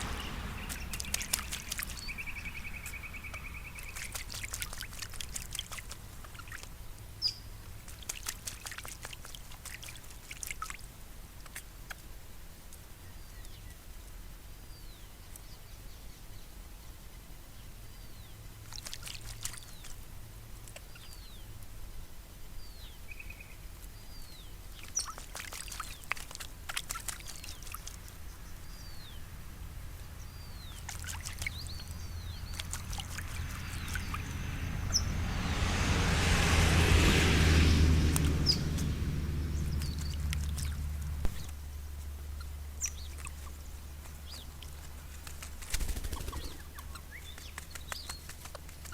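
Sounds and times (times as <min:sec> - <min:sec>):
broad rumbling noise: 0:00.0 - 0:03.8, 0:31.6 - 0:41.9
parrots splashing in water: 0:00.0 - 0:12.1, 0:18.6 - 0:21.4, 0:24.2 - 0:41.6, 0:42.8 - 0:48.9.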